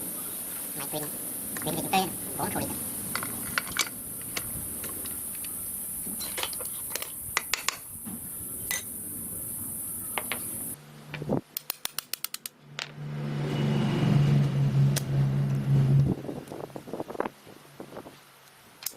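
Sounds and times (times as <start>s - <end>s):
metal parts clicking and knocking: 3.1s - 5.5s, 11.6s - 12.6s.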